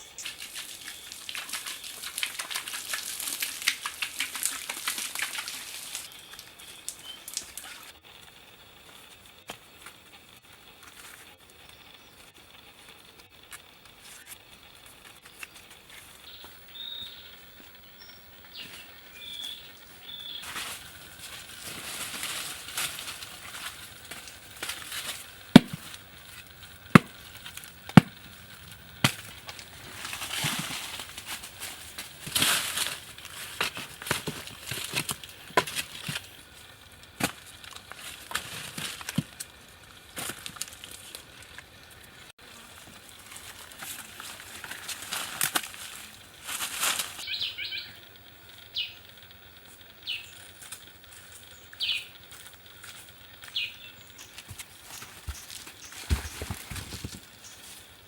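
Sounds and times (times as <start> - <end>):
rustling: 18.6 - 47.2, 54.1 - 58.0.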